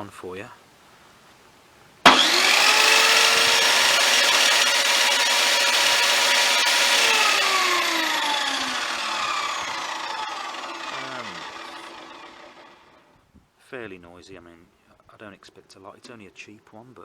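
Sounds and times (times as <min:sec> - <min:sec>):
table saw motor and blade whine: 0:02.1 - 0:13.1.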